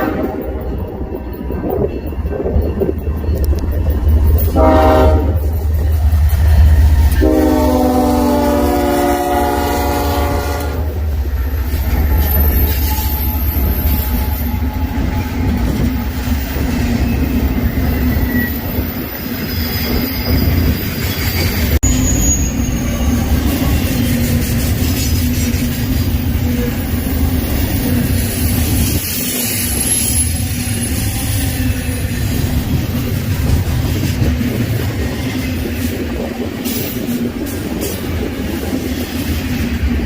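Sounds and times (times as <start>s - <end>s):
freight train rumbling past: 0.0s - 40.0s
thin wheel squeals: 17.0s - 24.2s, 29.0s - 32.4s.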